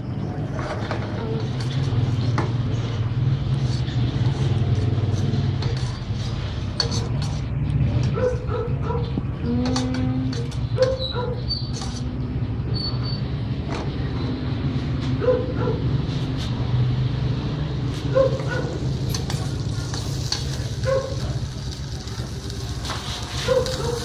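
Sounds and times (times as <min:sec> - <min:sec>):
chicken sizzling in a pan: 0:19.1 - 0:24.0.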